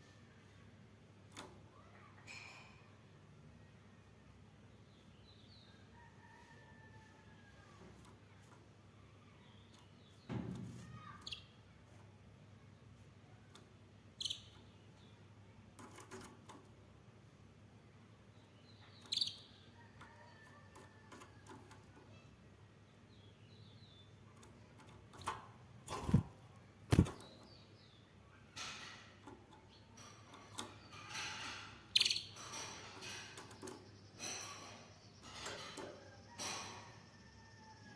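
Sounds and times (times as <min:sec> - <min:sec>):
canary chirps: 0:10.9 - 0:11.6, 0:13.5 - 0:15.2, 0:18.4 - 0:21.1, 0:29.5 - 0:37.9
rustling flapping noises: 0:25.1 - 0:27.4.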